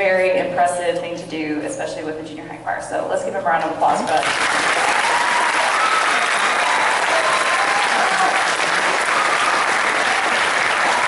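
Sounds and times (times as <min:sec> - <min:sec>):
audience applauding: 0:04.2 - 0:11.0
faint whoops: 0:04.8 - 0:10.2.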